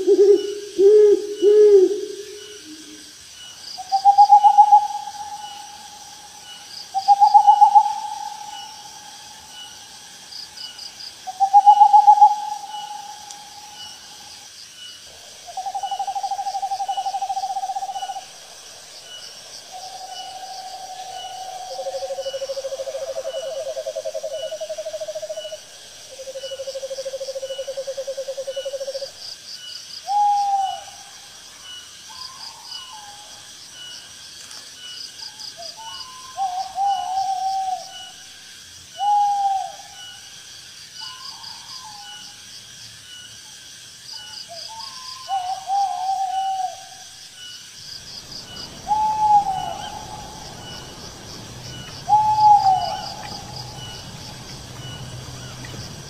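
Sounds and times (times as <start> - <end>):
night insects chirping: 0.0 - 56.0
short rising owl calls: 48.4 - 55.5
owls trilling: 48.5 - 54.1.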